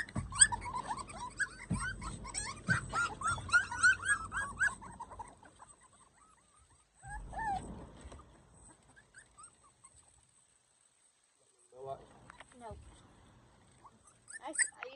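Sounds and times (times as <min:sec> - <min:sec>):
puppies whimpering: 0:00.0 - 0:10.3, 0:13.7 - 0:14.9.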